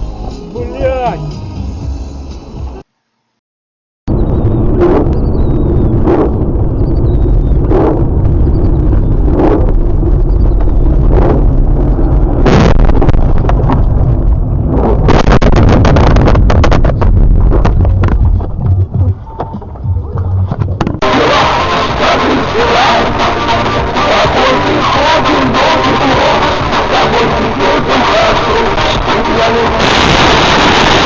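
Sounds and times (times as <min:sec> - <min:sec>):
vehicle low rumble: 0:04.1 - 0:31.0
crackling clattering knocks: 0:12.5 - 0:14.4, 0:15.1 - 0:19.8.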